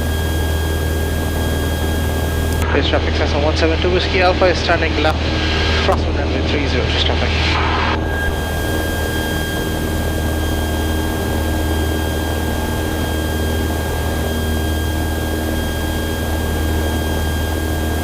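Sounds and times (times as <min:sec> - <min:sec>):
propeller plane engine drone: 0:00.0 - 0:18.0
thin steady whine: 0:00.0 - 0:18.0.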